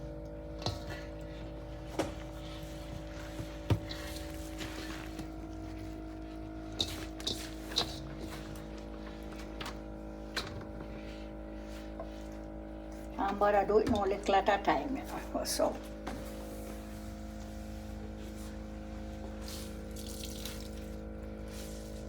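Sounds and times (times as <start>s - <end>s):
steady hum of fixed pitches: 12.9s - 19.6s.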